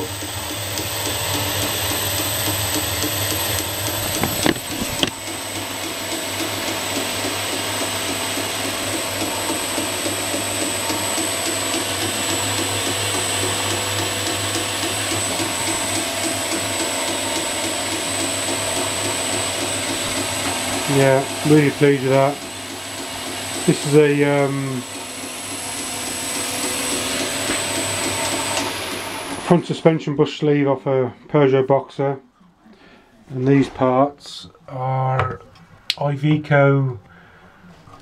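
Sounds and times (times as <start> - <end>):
belt grinder running: 0.0 - 29.6.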